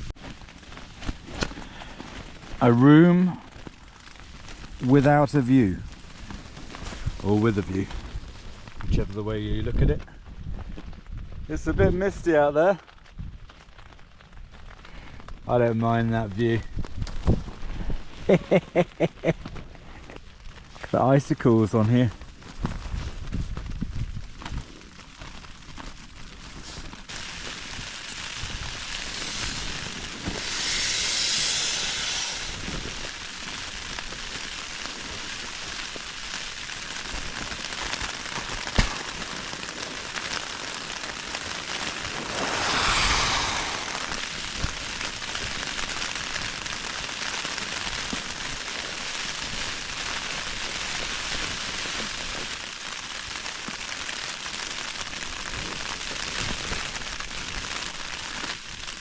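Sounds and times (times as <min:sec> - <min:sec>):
rain on a tent: 0:00.0 - 0:59.0
wind gusts: 0:27.1 - 0:33.7, 0:41.0 - 0:45.8.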